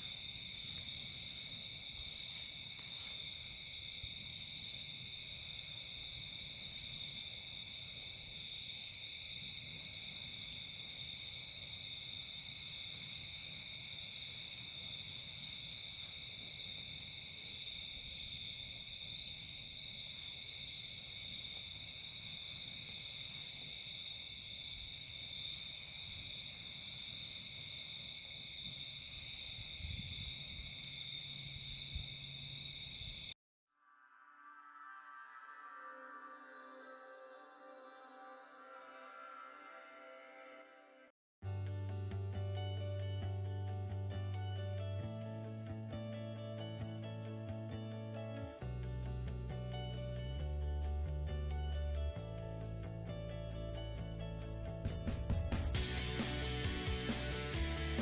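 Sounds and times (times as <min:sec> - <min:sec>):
crickets and insects trilling: 0:00.0 - 0:33.4.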